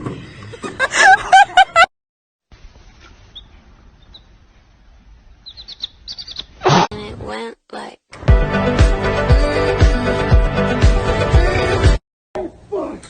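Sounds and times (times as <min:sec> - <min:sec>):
faint high bird chirps: 0:03.3 - 0:04.4, 0:05.4 - 0:06.6
loud wavering bird calls: 0:05.4 - 0:06.6.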